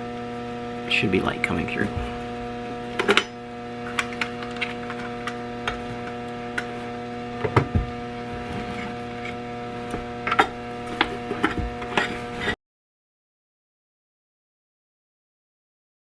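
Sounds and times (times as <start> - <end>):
electrical mains hum: 0.0 - 12.6
handling knocks and clicks: 7.4 - 12.2.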